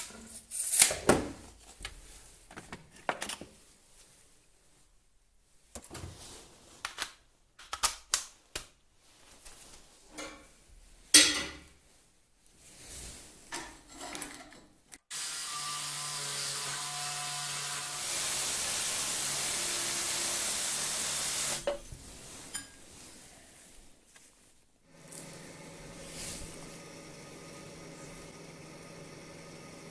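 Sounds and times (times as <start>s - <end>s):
noisy power tool running: 15.1s - 21.6s, 26.6s - 29.9s.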